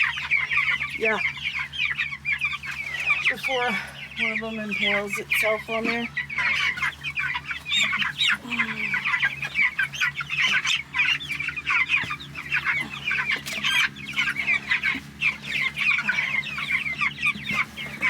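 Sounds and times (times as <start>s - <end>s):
chicks peeping: 0.0s - 18.0s
faint low hum: 0.0s - 18.0s.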